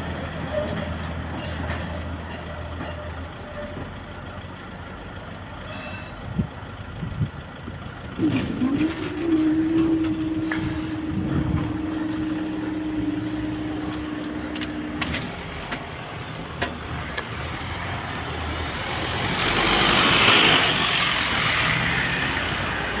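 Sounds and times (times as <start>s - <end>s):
vehicle tyres passing: 8.2s - 23.0s.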